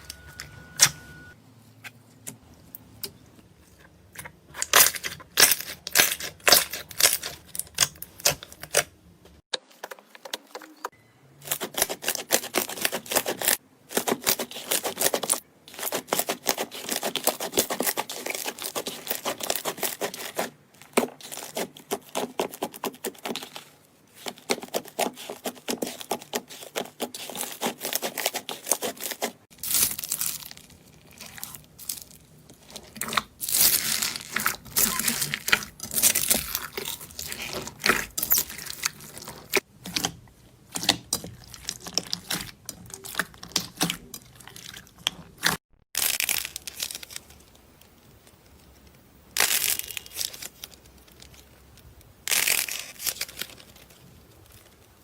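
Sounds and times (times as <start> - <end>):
slime crackling and popping: 11.5 - 40.1, 40.7 - 48.4, 49.3 - 51.5, 52.3 - 55.0.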